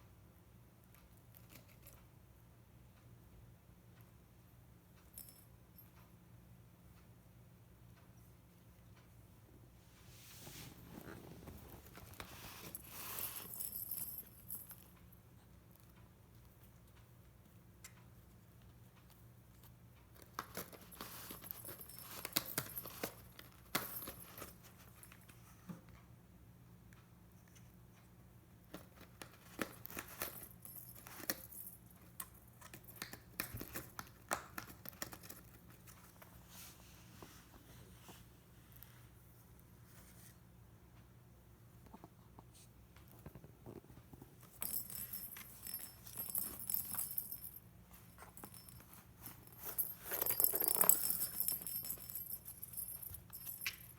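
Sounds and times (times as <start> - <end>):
cat playing with rustling toy: 10.0 - 14.7, 20.2 - 25.4, 28.9 - 38.2, 44.0 - 53.9.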